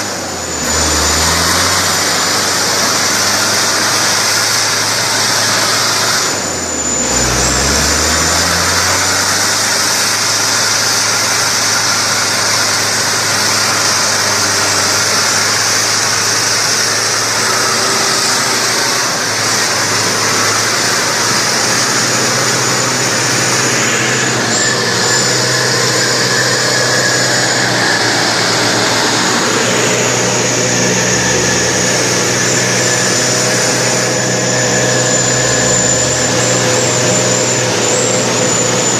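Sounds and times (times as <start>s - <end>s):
truck diesel engine running: 0.0s - 38.9s.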